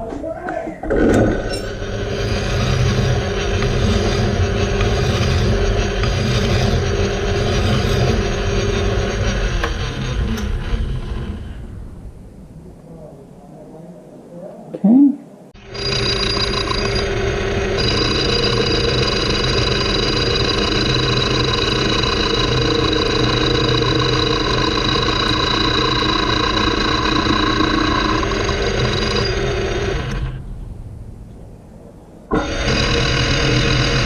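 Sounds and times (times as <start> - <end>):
gear whine: 0.8 - 12.0, 15.6 - 30.6, 32.3 - 34.0
metal lathe running: 1.3 - 11.6, 15.6 - 30.4, 32.3 - 34.0.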